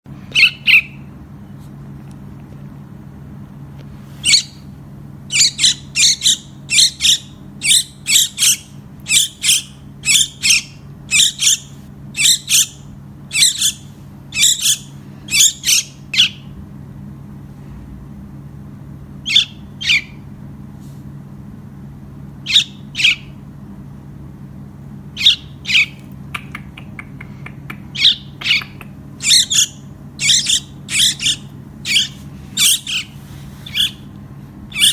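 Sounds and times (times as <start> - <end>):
steady low hum: 0.1 - 34.9
baby bird cheeping: 0.3 - 1.1, 4.2 - 4.7, 5.3 - 16.6, 19.2 - 20.3, 22.4 - 23.4, 25.1 - 34.1, 34.7 - 34.9.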